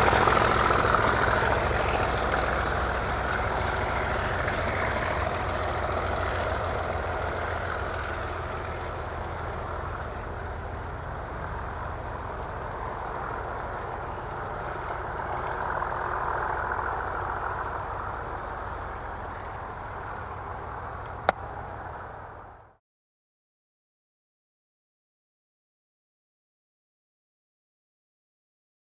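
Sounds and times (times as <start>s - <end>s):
diesel locomotive engines rumbling: 0.0s - 22.7s.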